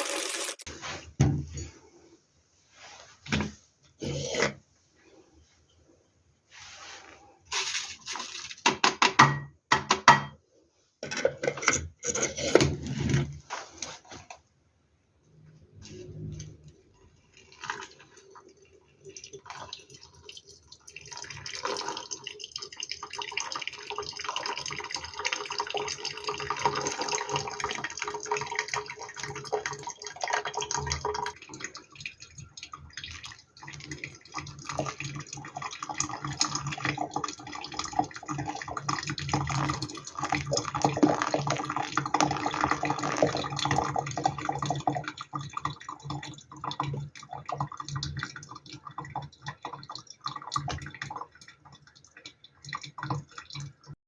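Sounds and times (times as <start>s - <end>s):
water pouring in a stream: 15.6s - 54.0s.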